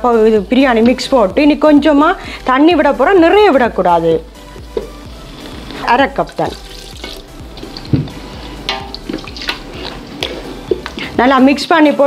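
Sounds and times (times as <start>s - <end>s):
masala sizzling in a pot: 3.5s - 11.8s
spatula scraping and knocking pot: 6.5s - 11.2s.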